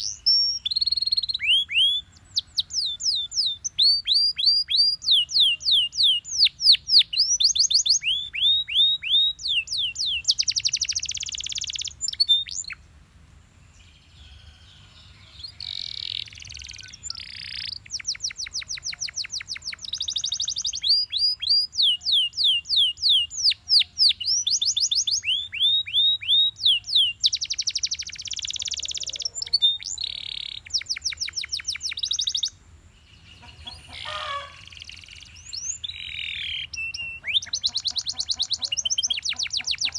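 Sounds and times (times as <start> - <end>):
canary singing: 0.0 - 12.8, 13.8 - 39.9.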